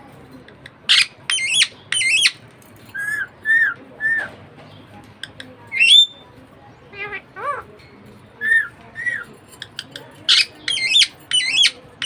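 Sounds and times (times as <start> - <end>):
budgerigar squawking and chirping: 0.9 - 2.4, 5.7 - 6.2, 6.9 - 7.7, 8.4 - 9.2, 10.3 - 11.9.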